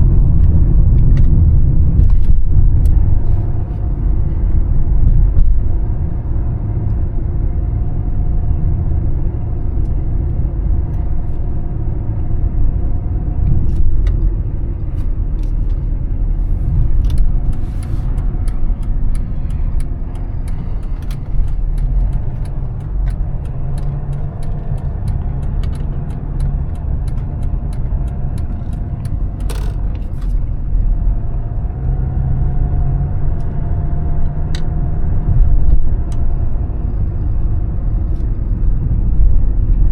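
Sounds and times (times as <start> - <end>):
diesel engine and road noise: 0.0 - 39.9
regular ticks: 16.9 - 30.5.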